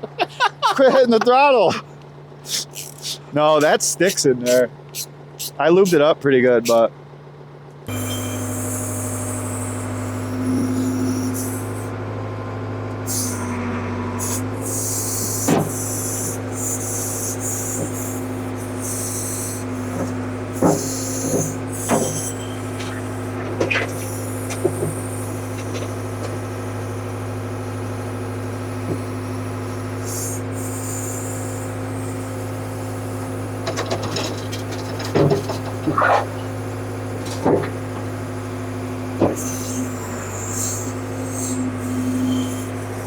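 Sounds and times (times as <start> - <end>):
diesel engine idling: 0.0 - 43.0
metal clanks: 19.8 - 26.5, 33.6 - 38.2.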